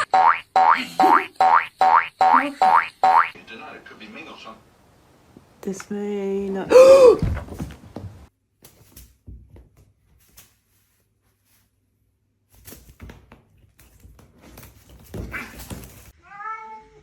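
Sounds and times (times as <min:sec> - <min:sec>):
scuffling and knocking: 0:07.2 - 0:11.7, 0:12.6 - 0:16.1
cat meowing: 0:16.2 - 0:17.0.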